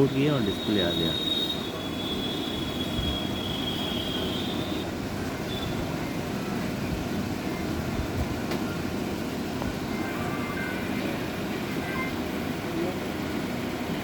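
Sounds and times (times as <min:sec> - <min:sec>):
thin high squeal: 0:00.4 - 0:04.8.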